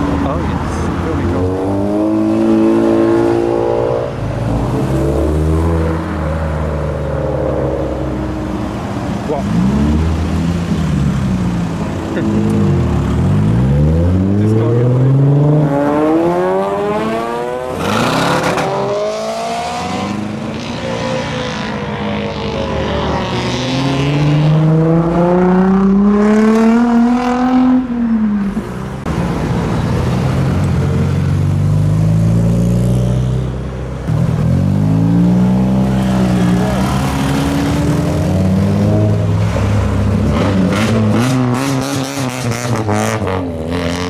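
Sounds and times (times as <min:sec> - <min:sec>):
car engines accelerating: 0:00.0 - 0:44.0.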